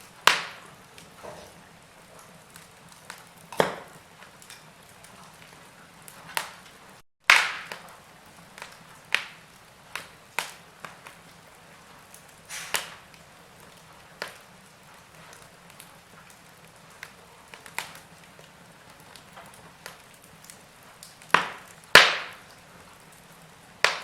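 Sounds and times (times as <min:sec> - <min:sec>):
wood fire crackling: 0:00.0 - 0:24.0
faint hiss: 0:11.8 - 0:13.1.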